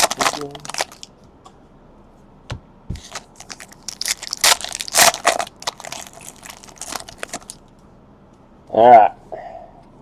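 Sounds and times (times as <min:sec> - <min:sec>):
foil wrappers crinkling and tearing: 0:00.0 - 0:01.1, 0:03.0 - 0:07.6.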